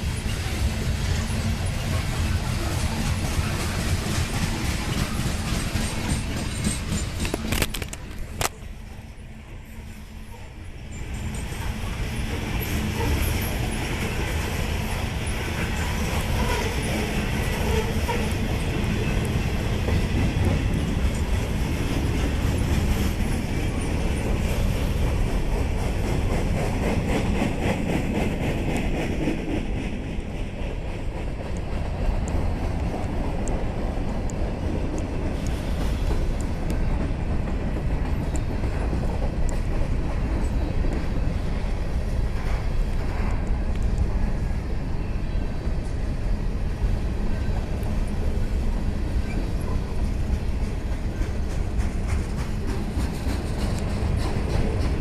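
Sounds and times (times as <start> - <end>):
wheels clicking over rail joints: 0.0 - 8.8, 47.3 - 55.0
freight train rumbling past: 0.0 - 55.0.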